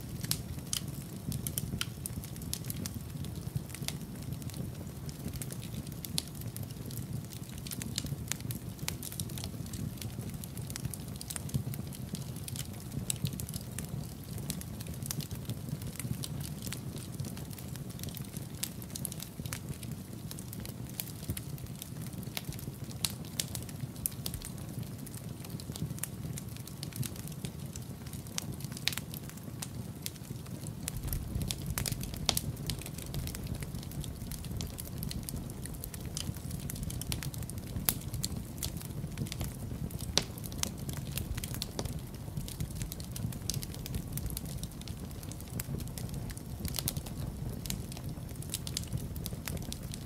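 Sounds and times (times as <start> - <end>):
low rumble of fire: 0.0 - 50.0
wood fire crackling: 0.0 - 50.0.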